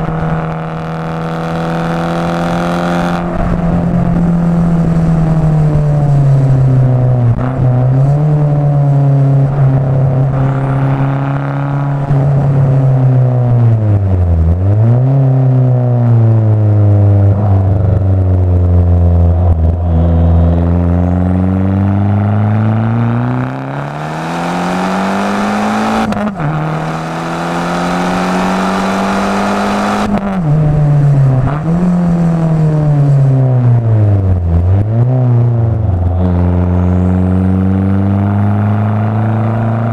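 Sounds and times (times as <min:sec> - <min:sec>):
exhaust crack: 0:00.0 - 0:24.0
car engine revving: 0:00.0 - 0:39.9.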